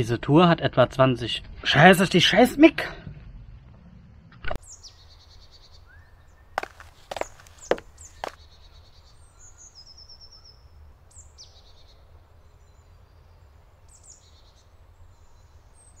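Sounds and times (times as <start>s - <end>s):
songbirds chirping and trilling: 4.6s - 16.0s.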